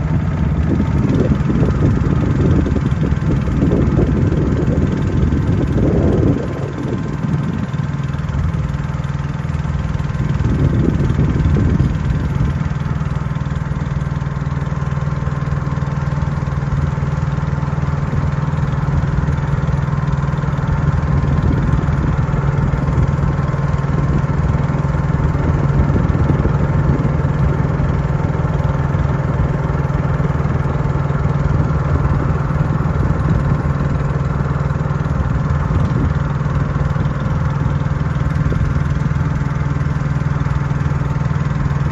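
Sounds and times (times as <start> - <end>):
boat engine humming: 0.0 - 41.9.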